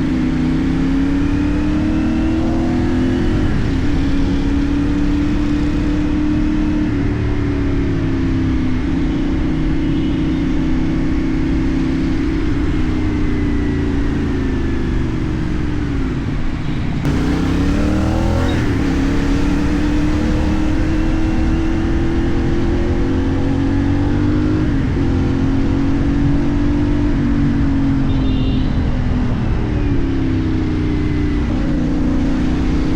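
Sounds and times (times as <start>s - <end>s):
motorcycle engine: 0.0s - 32.9s.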